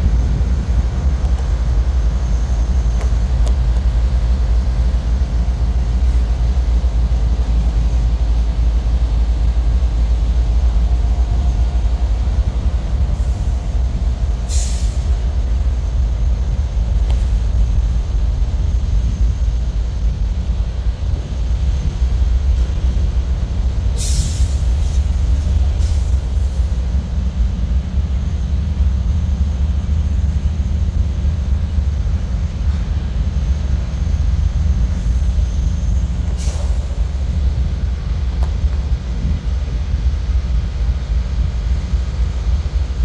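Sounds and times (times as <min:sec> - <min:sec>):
freight train rumbling on rails: 0:00.0 - 0:43.0.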